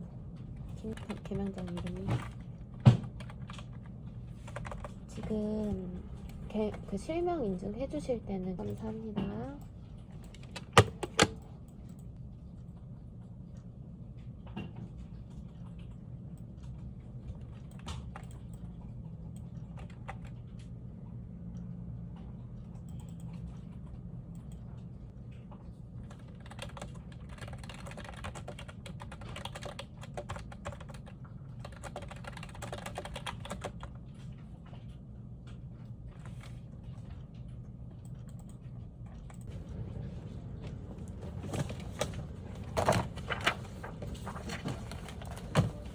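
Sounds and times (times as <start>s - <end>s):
steady low hum: 0.0s - 45.9s
typing on computer keyboard: 0.7s - 5.5s, 10.1s - 12.1s, 16.6s - 20.5s, 26.0s - 34.3s.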